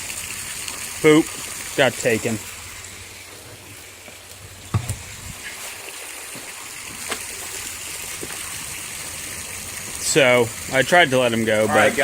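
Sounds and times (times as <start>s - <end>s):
water lapping and splashing: 0.0s - 12.0s
sharp knocks: 4.7s - 5.1s.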